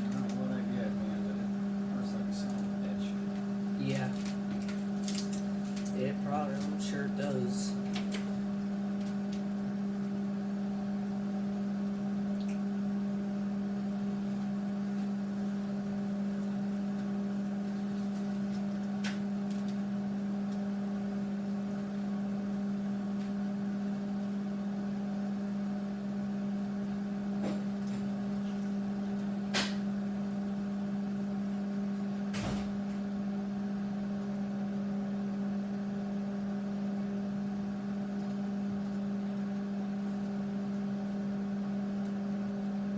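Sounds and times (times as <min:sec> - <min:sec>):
microwave oven humming: 0:00.0 - 0:42.9.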